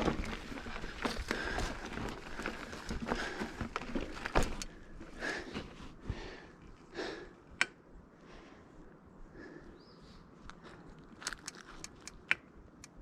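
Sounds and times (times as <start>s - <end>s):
bike clicks and rattles: 0.0s - 7.8s, 10.5s - 13.0s
tyre noise on trail: 0.0s - 13.0s.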